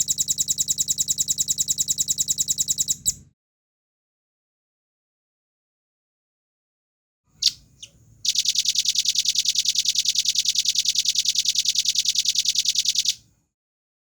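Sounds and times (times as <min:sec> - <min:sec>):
nuthatch call and trill: 0:07.4 - 0:13.2.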